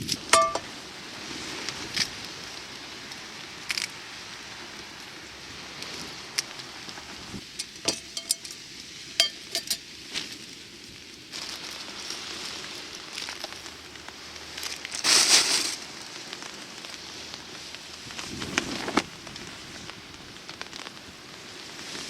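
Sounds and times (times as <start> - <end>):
cookware clicking and clinking: 0.4 - 0.6, 7.6 - 8.6, 9.2 - 9.8
loud hiss: 11.2 - 22.0
steady crackling: 11.3 - 22.0.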